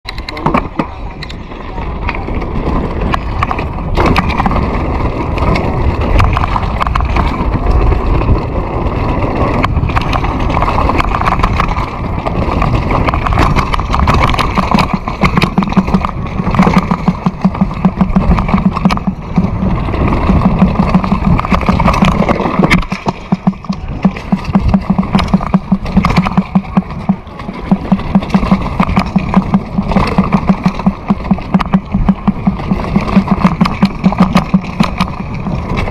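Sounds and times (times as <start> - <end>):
wind rumbling on microphone: 0.1 - 35.9
vehicle engine running: 2.0 - 35.9
low pulsing beat: 13.3 - 35.5.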